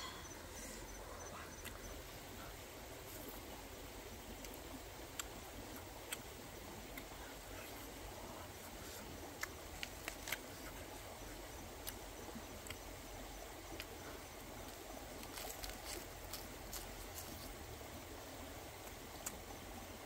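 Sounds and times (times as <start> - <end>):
chewing and lip smacks: 4.4 - 6.3, 8.6 - 10.9, 13.7 - 17.6.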